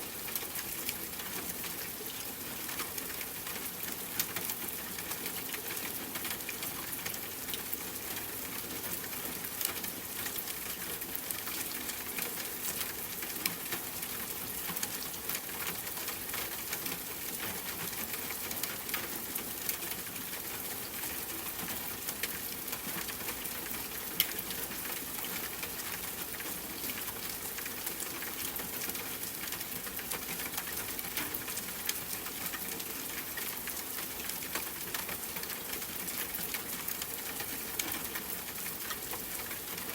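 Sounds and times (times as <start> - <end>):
rain patter: 0.0 - 39.9.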